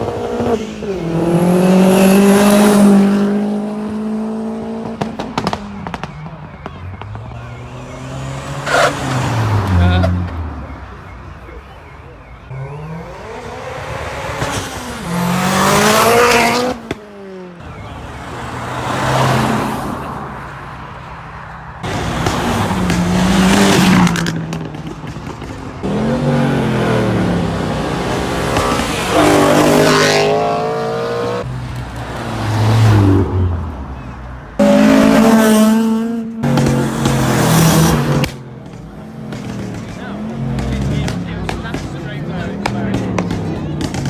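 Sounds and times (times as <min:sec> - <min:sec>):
car engines revving hard: 0:00.0 - 0:44.0
tire squeal: 0:07.0 - 0:10.9.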